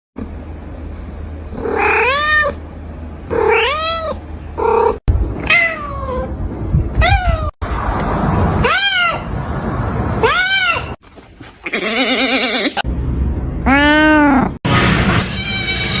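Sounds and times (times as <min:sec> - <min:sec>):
kitten meowing: 0:13.7 - 0:14.5.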